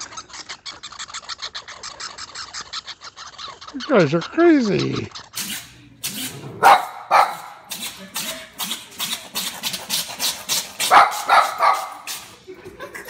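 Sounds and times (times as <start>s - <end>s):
cat making bark-like calls: 6.6s - 7.6s, 10.8s - 12.1s.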